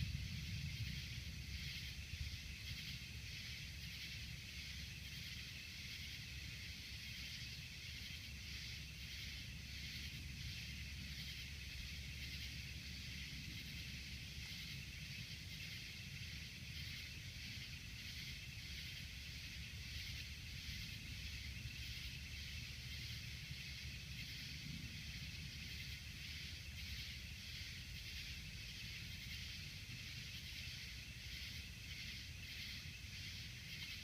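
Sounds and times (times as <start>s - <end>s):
steady low rumble: 0.0s - 4.6s
insects calling: 0.0s - 34.0s.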